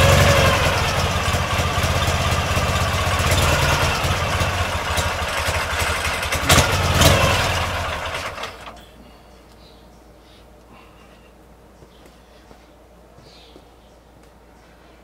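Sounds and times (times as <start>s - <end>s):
motorcycle engine running: 0.0s - 8.8s
sharp exhaust bangs: 0.0s - 8.8s.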